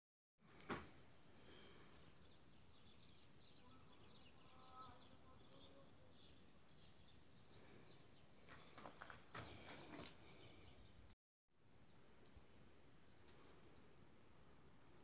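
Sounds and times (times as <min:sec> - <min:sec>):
faint bird chirping: 0:00.9 - 0:11.2.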